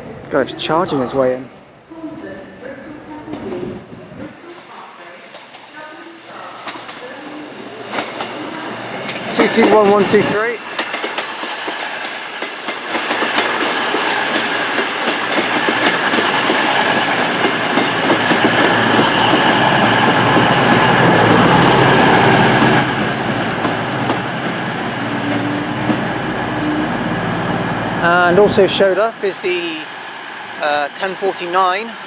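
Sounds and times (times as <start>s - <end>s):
diesel train passing slowly: 2.6s - 32.0s
high squeal: 19.1s - 23.8s.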